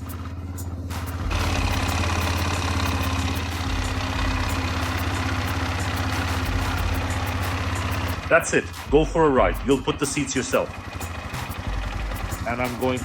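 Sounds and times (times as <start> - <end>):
small petrol engine idling: 0.0 - 13.0.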